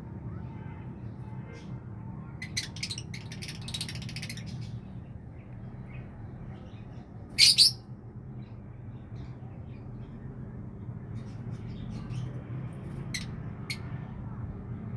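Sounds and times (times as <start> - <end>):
small bird chirping: 2.4 - 7.9.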